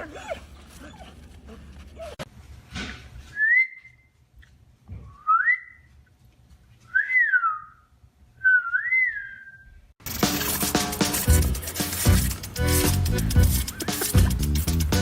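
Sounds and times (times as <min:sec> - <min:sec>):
whistled notes sliding up: 0:08.4 - 0:09.8.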